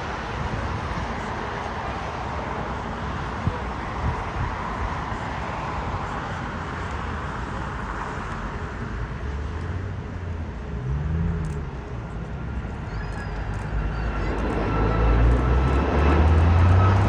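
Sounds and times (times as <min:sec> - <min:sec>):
low hum rising and falling: 0:09.3 - 0:17.0
jet engine roar: 0:11.5 - 0:17.0.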